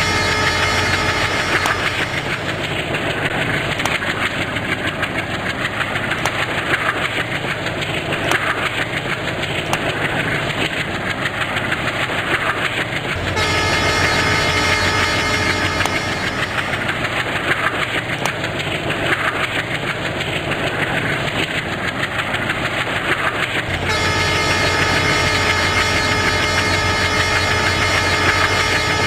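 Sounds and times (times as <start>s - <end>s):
steady hum: 0.0s - 3.0s, 13.1s - 17.5s, 23.7s - 29.0s
train rumbling and rattling: 0.0s - 29.0s.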